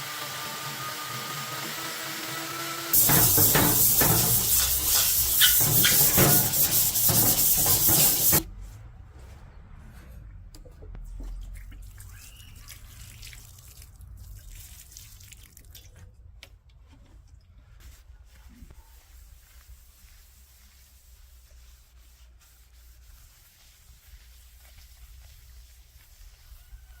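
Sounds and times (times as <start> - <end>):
rubbing: 2.9 - 8.4
water spraying on steel plate: 2.9 - 8.4
faint water drips: 11.3 - 16.1.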